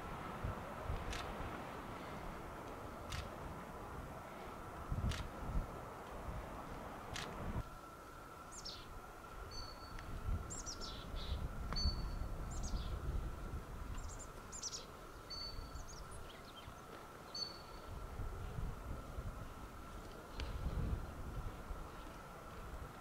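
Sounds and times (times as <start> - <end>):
small birds calling: 9.5 - 13.0, 14.0 - 17.9.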